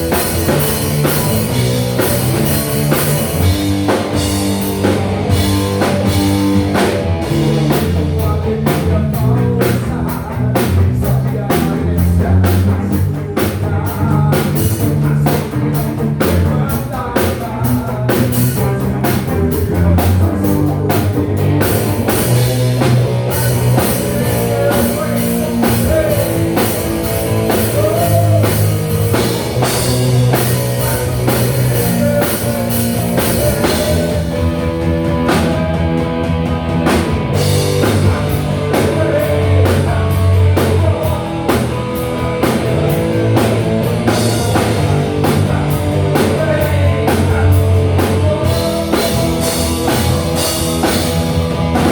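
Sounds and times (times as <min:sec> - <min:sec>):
drum kit beat: 0:00.0 - 0:51.9
rock band playing live: 0:00.0 - 0:51.9.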